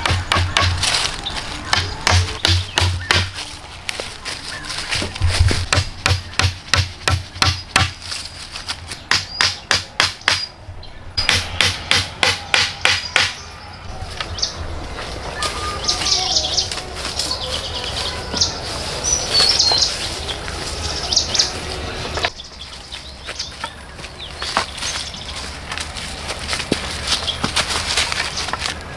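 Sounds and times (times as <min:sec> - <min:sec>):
tool striking wood: 0:00.0 - 0:01.0, 0:01.6 - 0:03.4, 0:05.2 - 0:08.0, 0:09.1 - 0:10.5, 0:11.2 - 0:13.4
birds chirping: 0:00.0 - 0:28.9.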